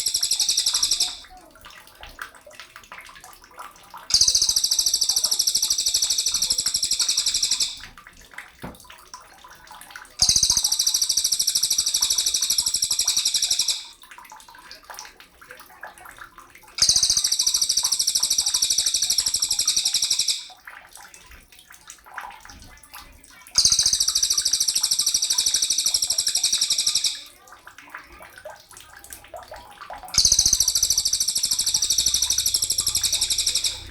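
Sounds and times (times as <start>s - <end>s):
bird buzzy rattling trill: 0.0s - 1.2s, 4.1s - 7.8s, 10.2s - 13.9s, 16.8s - 20.5s, 23.6s - 27.2s, 30.2s - 33.9s.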